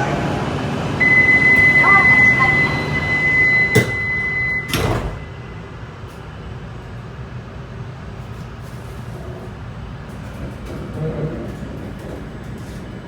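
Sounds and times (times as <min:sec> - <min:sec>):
train interior hum: 0:00.0 - 0:13.0
sliding doors shutting thuds: 0:01.0 - 0:05.3, 0:08.5 - 0:13.0
door-closing buzzer beep: 0:01.0 - 0:05.4.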